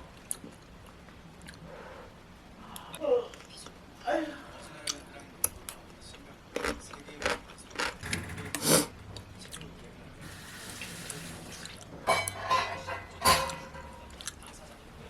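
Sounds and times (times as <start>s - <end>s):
kitchen tap running: 10.2s - 11.6s
dishes clinking at sink: 12.0s - 14.2s.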